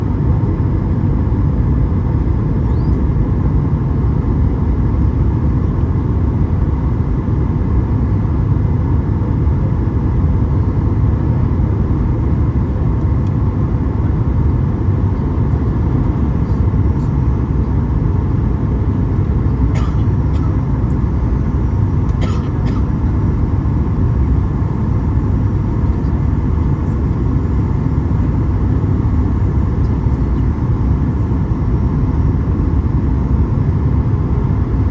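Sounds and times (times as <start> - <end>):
airliner cabin engine rumble: 0.0 - 34.9.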